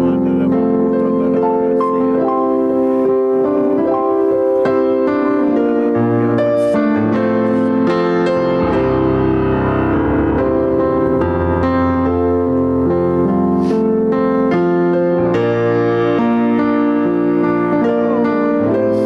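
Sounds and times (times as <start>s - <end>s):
keyboard playing worship chords: 0.0s - 19.0s
moving bass line: 8.2s - 13.3s.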